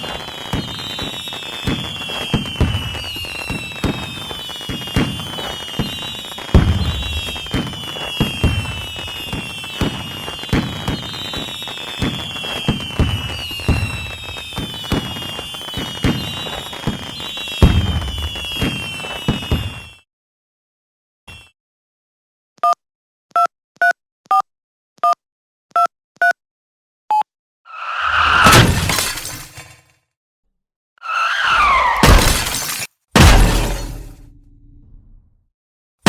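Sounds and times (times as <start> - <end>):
high whistles gliding down: 0.0 - 19.6
deep firework booms: 0.0 - 19.9
firework bangs and crackling pops: 0.0 - 20.0.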